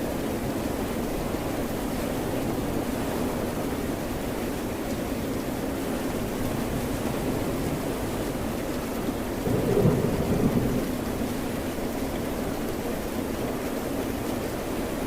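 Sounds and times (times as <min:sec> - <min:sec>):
steady rain: 0:00.0 - 0:15.0
distant thunder rumble: 0:09.2 - 0:11.4.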